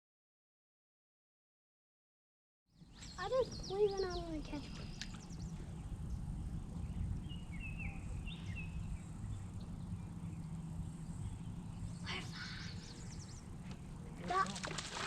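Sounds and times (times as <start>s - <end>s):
bird chirping: 2.7s - 13.8s
low steady river rumble: 2.7s - 15.0s.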